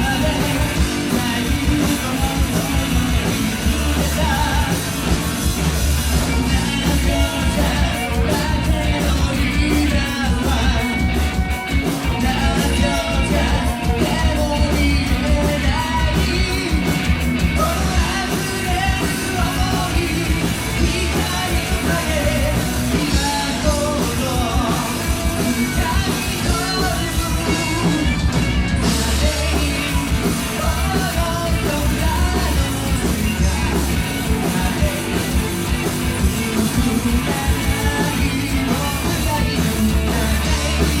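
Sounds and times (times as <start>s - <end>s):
lead singer singing: 0.0s - 41.0s
live rock band playing: 0.0s - 41.0s.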